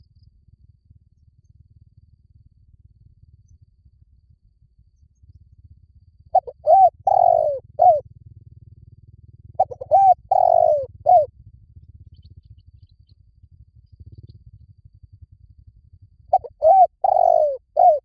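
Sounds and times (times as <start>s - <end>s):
faint low hum: 0.0s - 18.0s
dove cooing: 6.4s - 8.0s, 9.6s - 11.3s, 16.3s - 18.0s.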